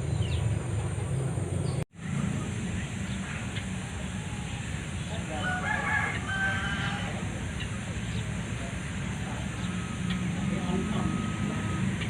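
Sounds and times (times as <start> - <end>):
rooster crowing: 3.8 - 7.3.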